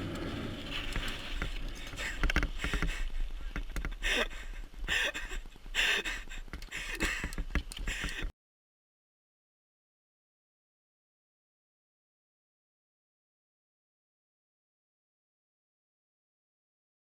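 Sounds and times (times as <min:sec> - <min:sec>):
mountain bike rattling and knocking: 0:00.0 - 0:08.3.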